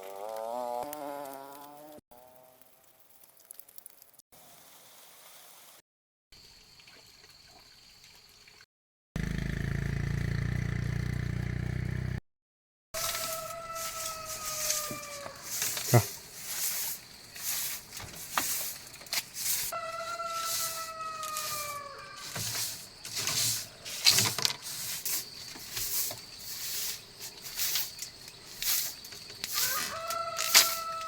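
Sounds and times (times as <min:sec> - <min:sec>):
rooster crowing in the distance: 0:13.0 - 0:15.6, 0:19.7 - 0:22.3, 0:29.5 - 0:31.0.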